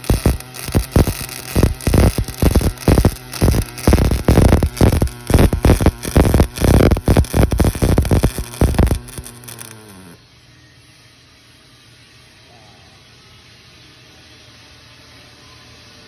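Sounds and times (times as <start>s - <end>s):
welding arc crackling: 0.0s - 10.2s
electrical hum: 0.0s - 10.4s.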